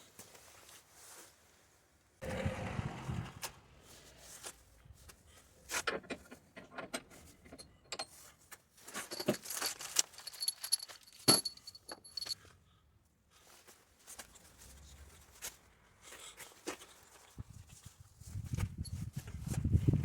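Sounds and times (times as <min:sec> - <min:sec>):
small metal objects clinking: 0:08.9 - 0:12.4
high metallic ringing: 0:10.3 - 0:12.4.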